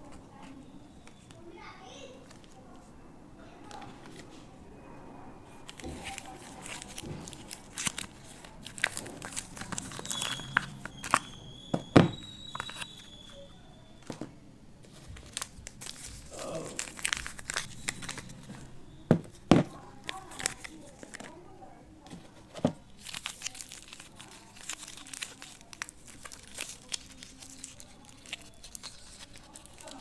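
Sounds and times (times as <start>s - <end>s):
packaging torn and crinkled: 5.6s - 11.4s, 15.0s - 18.7s, 20.0s - 21.3s, 22.9s - 30.0s.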